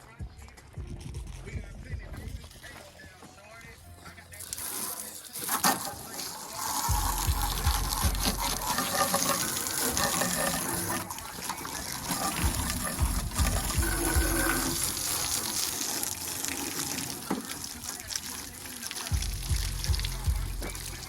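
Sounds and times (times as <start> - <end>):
water spraying and gushing: 4.3 - 21.0.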